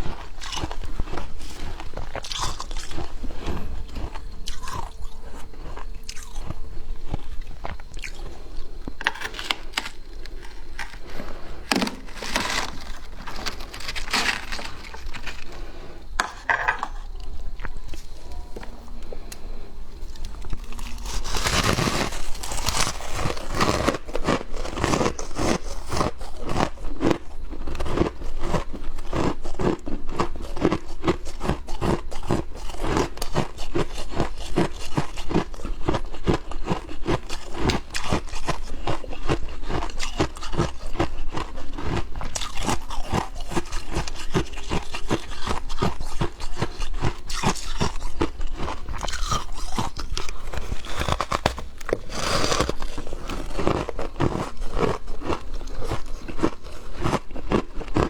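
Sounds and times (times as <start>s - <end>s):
frost being scraped: 9.0s - 16.1s, 20.8s - 24.0s, 49.8s - 54.3s.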